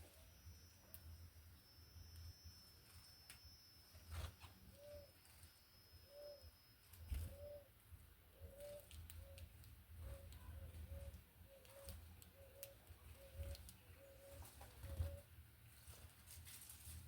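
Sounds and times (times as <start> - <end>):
dove cooing: 4.8 - 5.1, 6.1 - 6.4, 7.1 - 7.7, 8.3 - 15.3.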